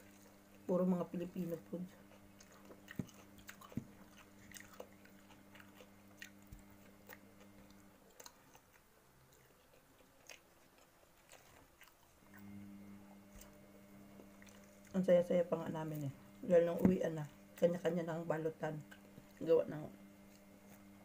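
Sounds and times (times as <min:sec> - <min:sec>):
faint chewing and biting food: 0:00.0 - 0:15.1, 0:18.8 - 0:19.5, 0:20.2 - 0:21.0
low steady hum: 0:00.0 - 0:21.0.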